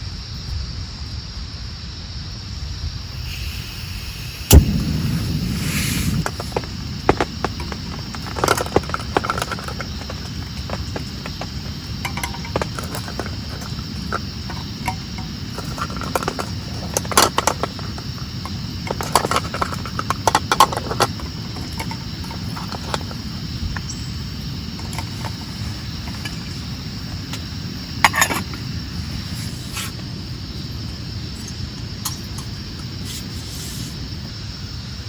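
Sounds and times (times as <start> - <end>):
sharp clicks and knocks: 6.2 - 23.2.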